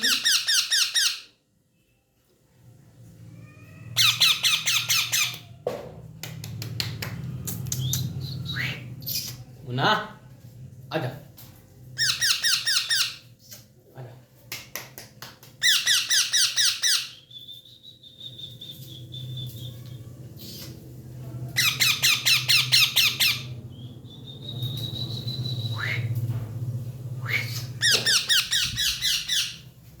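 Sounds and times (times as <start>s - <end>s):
parrot squawking: 0.0s - 1.3s, 3.9s - 5.5s, 12.0s - 13.2s, 15.6s - 17.2s, 21.6s - 23.6s, 27.2s - 29.7s.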